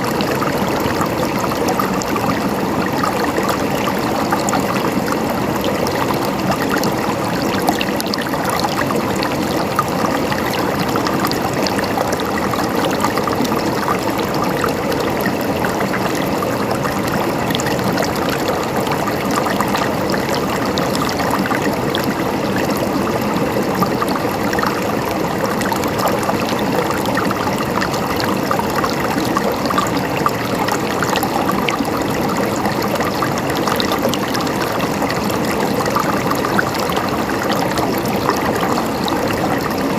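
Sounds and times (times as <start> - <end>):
water trickling and gurgling: 0.0 - 39.9.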